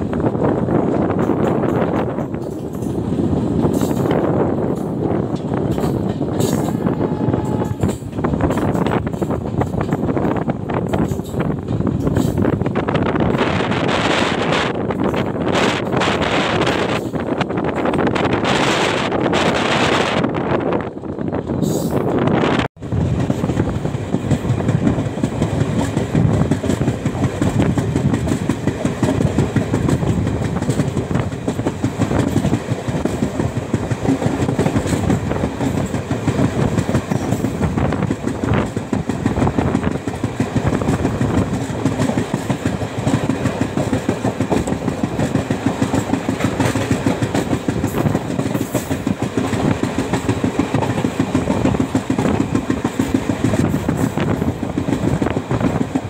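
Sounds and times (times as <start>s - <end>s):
wheels clickety-clack over rails: 0.0s - 20.2s, 22.7s - 56.0s
train rumbling: 0.0s - 56.0s.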